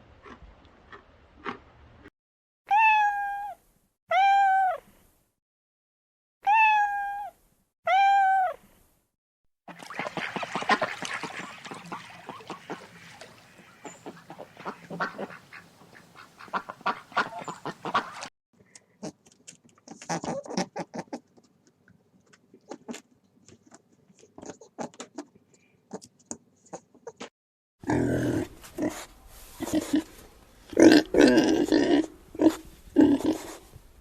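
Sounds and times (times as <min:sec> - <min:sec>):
waterfowl calling: 0:09.7 - 0:18.3.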